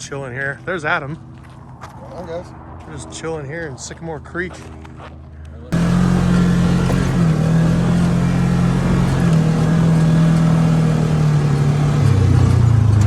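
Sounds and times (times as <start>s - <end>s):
vehicle engine running: 5.7s - 13.0s.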